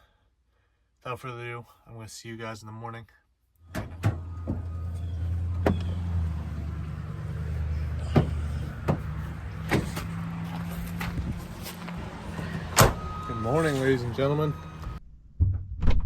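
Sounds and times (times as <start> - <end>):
vehicle idling: 3.7 - 15.0.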